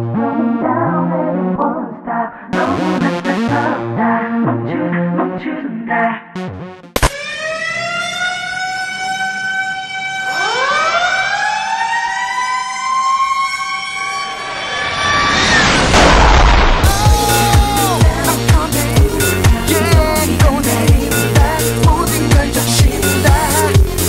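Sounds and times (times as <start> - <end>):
siren tone falling in pitch: 6.4 - 18.2
siren winding up: 7.0 - 16.0
rising whoosh: 14.0 - 18.4
sharp hit: 14.0 - 20.0.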